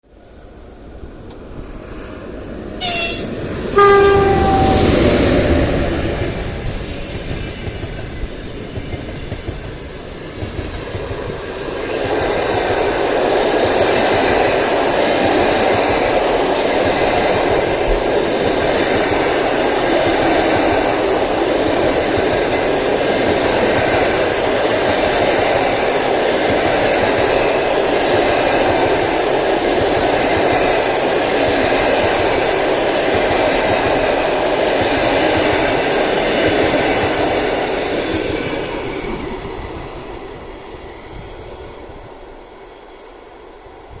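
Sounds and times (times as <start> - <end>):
train wheels rattling on rails: 0.9 - 44.0.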